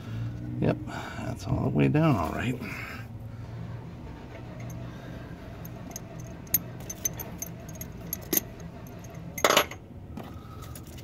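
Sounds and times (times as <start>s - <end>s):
metal parts clinking: 4.5s - 4.9s, 5.6s - 9.8s.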